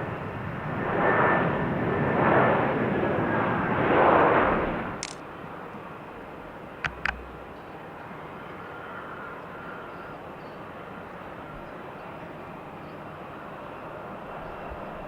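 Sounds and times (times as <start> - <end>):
distant aircraft engine rush: 0.0 - 15.0
sharp clicks: 6.9 - 7.6.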